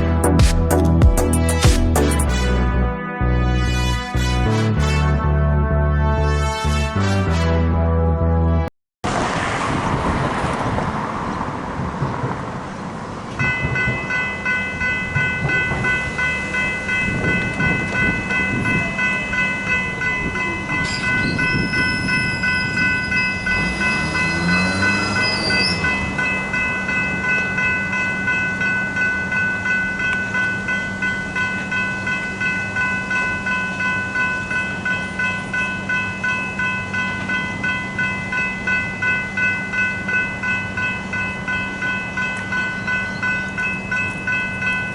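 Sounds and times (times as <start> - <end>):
train passing: 9.1 - 44.9
level crossing warning bells: 13.3 - 44.9
high metallic squeal: 20.8 - 26.6.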